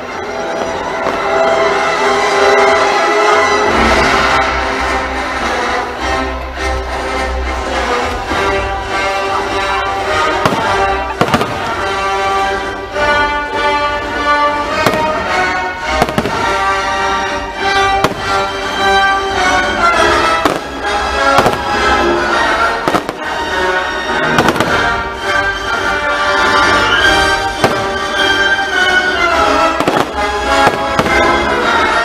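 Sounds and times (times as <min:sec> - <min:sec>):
loud show music: 0:00.0 - 0:32.0
fireworks bangs: 0:10.3 - 0:12.0, 0:14.8 - 0:17.2, 0:17.8 - 0:19.0, 0:20.1 - 0:23.6, 0:24.2 - 0:25.1, 0:26.6 - 0:32.0.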